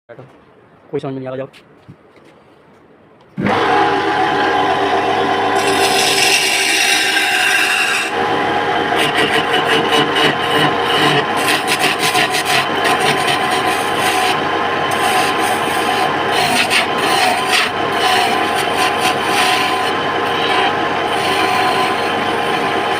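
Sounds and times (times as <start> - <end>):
lathe motor hum: 3.4 - 22.9
tool scraping spinning wood: 3.4 - 22.9.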